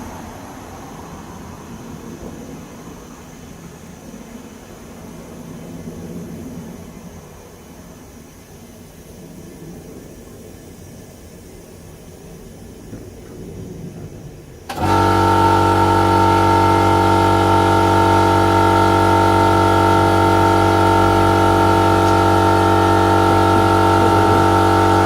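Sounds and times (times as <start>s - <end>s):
air compressor running: 14.7s - 25.0s.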